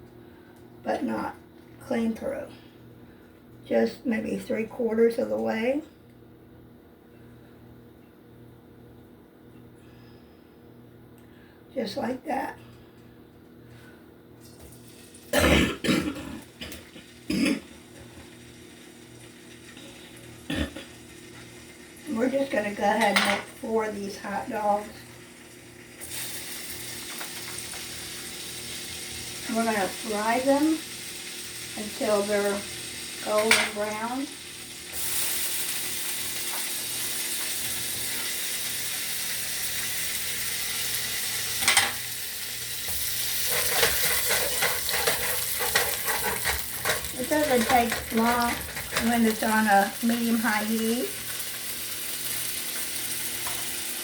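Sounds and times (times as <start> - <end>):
hot dogs sizzling in grease: 14.4 - 15.4, 16.4 - 54.0
dishes clattering on a counter: 23.0 - 23.5, 33.4 - 33.8, 41.6 - 42.0
utensil clicking against pan: 43.5 - 49.4.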